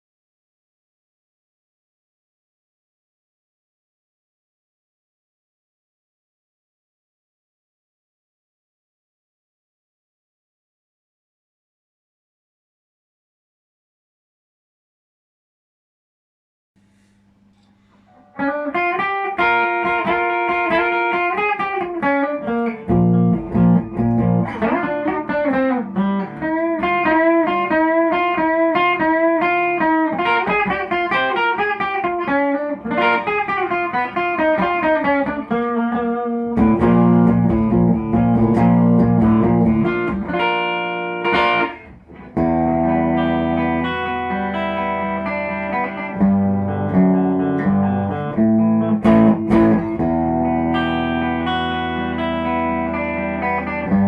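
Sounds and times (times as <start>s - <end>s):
electric guitar playing: 17.8s - 54.0s.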